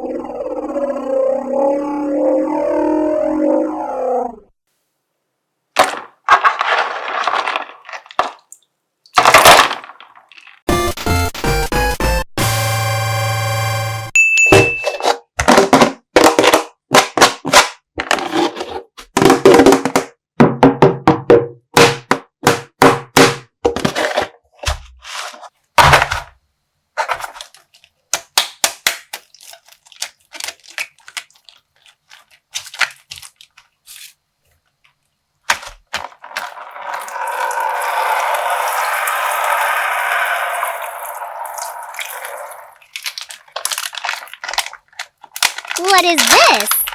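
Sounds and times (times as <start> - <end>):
plastic bag cracking and popping: 5.8 - 10.7, 27.4 - 33.7, 42.7 - 46.9
water pouring: 36.0 - 46.9.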